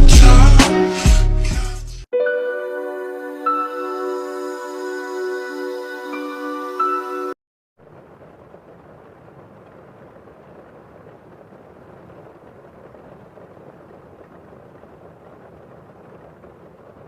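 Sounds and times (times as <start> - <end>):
muffled rain: 7.8 - 17.0.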